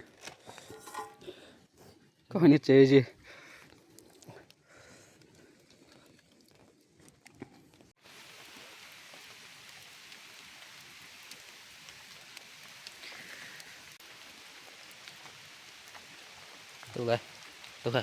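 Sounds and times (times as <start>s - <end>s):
raindrops ticking: 3.2s - 18.0s
rain hissing: 8.0s - 18.0s.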